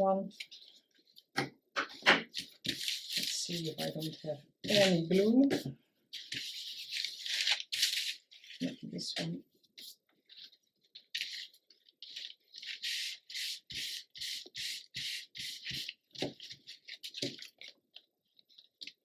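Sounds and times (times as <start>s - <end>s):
scratchy paper swishes: 1.9s - 8.9s.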